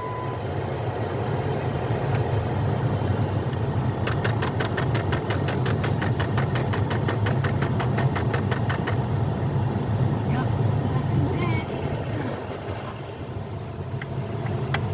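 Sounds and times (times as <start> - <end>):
car engine idling: 0.0 - 14.9
rapid actuator clicking: 4.0 - 9.0.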